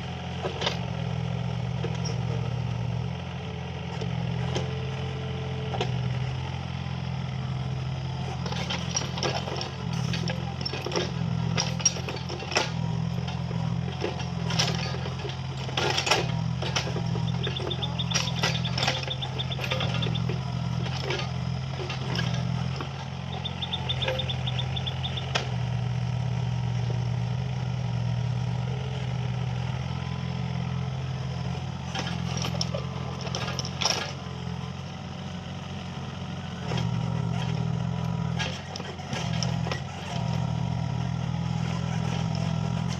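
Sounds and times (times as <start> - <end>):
excavator diesel engine running: 0.0 - 42.9
knocks and clanks: 13.9 - 25.5.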